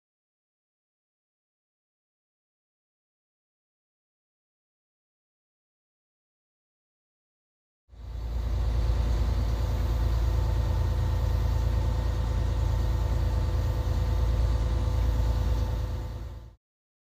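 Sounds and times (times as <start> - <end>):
engine droning: 8.0 - 16.6
faint steady hums: 8.0 - 16.6.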